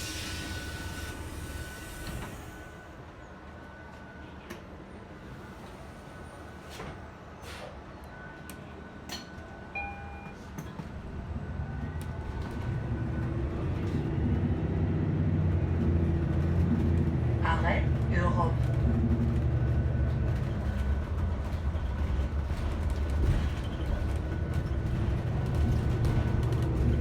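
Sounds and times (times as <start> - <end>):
vehicle rumbling: 10.6 - 27.0.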